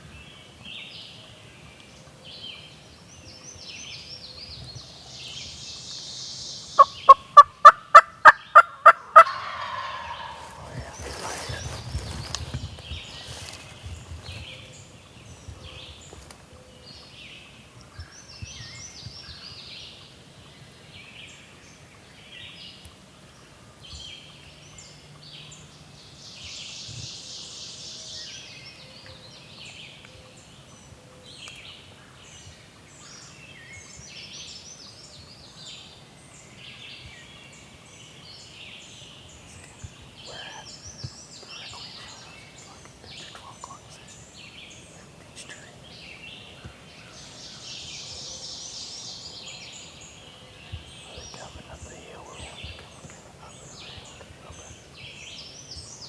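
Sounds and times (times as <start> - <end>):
songbirds singing: 0.0 - 56.0
turkey gobbling: 6.8 - 12.1.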